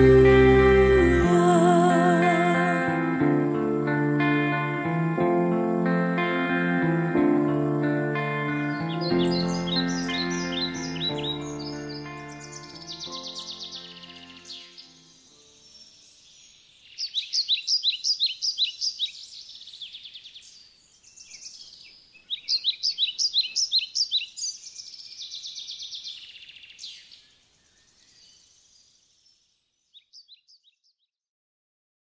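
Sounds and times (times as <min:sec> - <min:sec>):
songbird singing: 0:07.8 - 0:31.1
faint bird chirps: 0:09.0 - 0:31.1.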